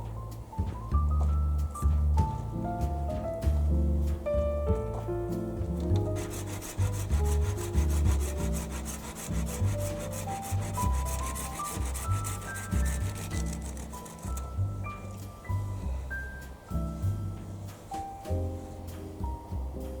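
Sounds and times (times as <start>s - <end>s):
background music with bass line: 0.0s - 20.0s
hand tool scraping wood: 5.8s - 14.6s.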